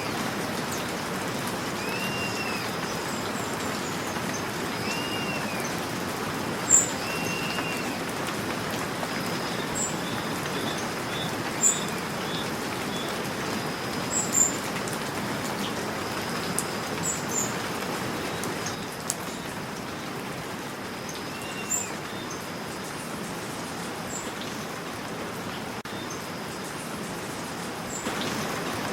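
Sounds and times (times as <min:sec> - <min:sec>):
steady rain falling: 0:00.0 - 0:28.9
birds chirping: 0:01.7 - 0:20.2, 0:21.0 - 0:22.6.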